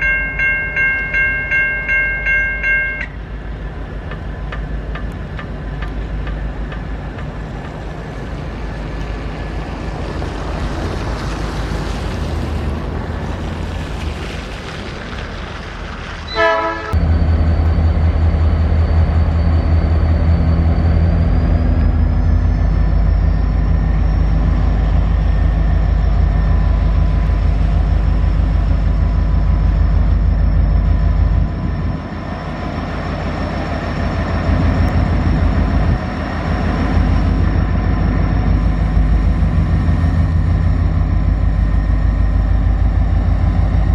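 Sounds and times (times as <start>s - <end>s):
diesel engine rumble: 0.0s - 43.9s
train horn toot: 16.3s - 17.0s
steady high whine: 17.0s - 43.9s.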